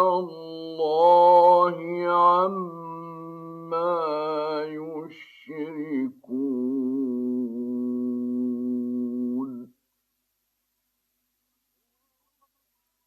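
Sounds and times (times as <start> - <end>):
man reciting melodically: 0.0 - 9.8.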